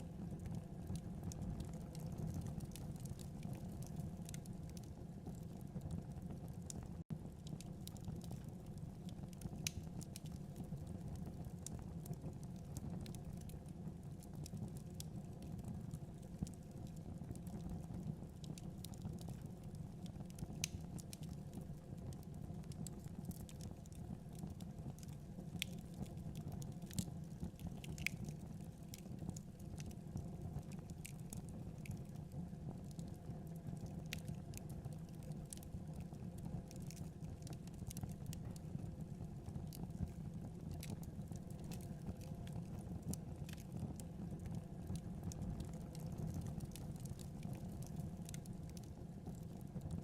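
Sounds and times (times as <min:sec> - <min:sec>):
fire crackling in a fireplace: 0:00.0 - 0:50.0.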